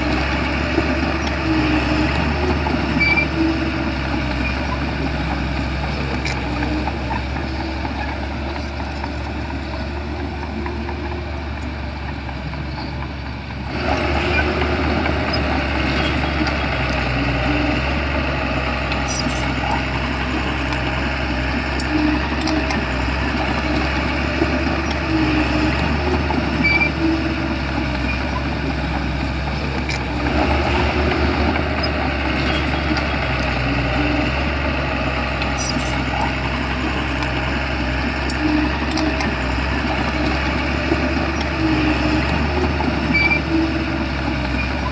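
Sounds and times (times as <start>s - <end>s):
bulldozer diesel engine running: 0.0s - 44.9s.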